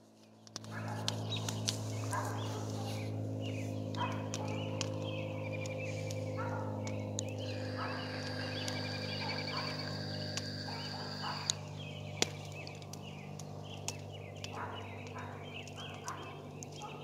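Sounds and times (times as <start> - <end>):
small birds chirping and trilling: 0.0 - 17.0
low hum: 1.2 - 12.4
sharp clicks: 6.8 - 14.0.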